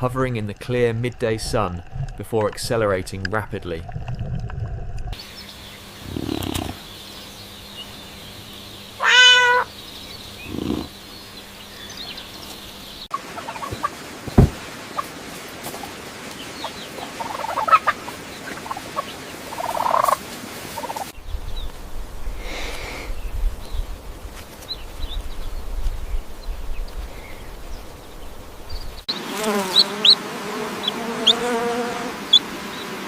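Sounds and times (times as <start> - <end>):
cat meowing: 9.0 - 9.7
soft thuds: 14.2 - 14.6.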